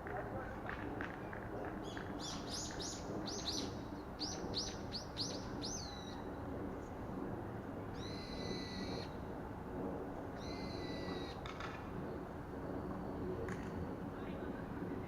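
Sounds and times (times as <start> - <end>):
bird chirping: 1.8 - 6.2
bird long high call: 8.0 - 9.2, 10.4 - 11.4.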